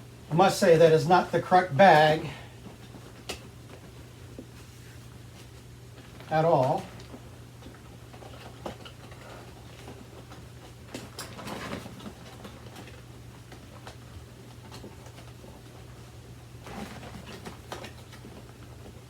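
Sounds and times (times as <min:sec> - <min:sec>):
steady low hum: 0:00.0 - 0:10.4
clicks and rustles of handling: 0:01.9 - 0:19.0.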